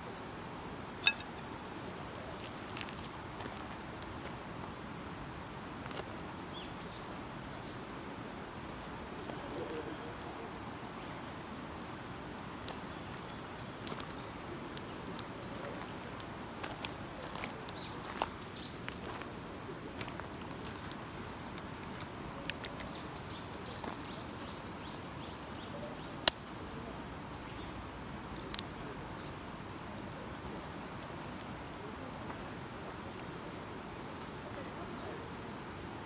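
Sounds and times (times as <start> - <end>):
campfire snapping: 0.5 - 6.4, 8.6 - 36.0
songbird chirping: 17.2 - 19.2, 22.6 - 30.2.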